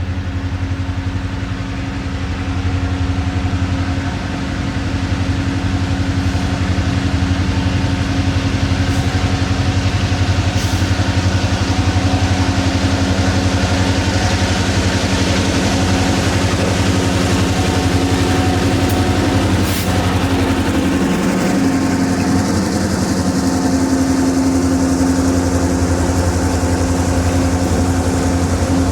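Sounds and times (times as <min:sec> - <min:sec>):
locomotive engine throbbing: 0:00.0 - 0:28.9.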